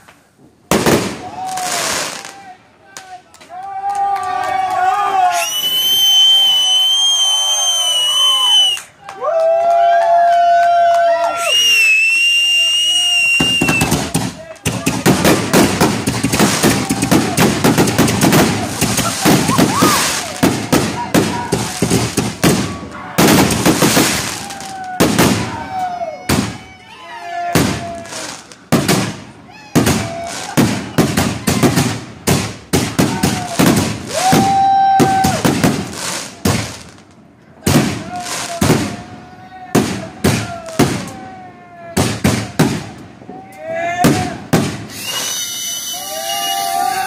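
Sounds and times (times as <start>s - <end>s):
fireworks bangs and crackling: 0.0s - 3.2s, 11.3s - 26.8s, 27.4s - 43.4s, 44.0s - 47.0s.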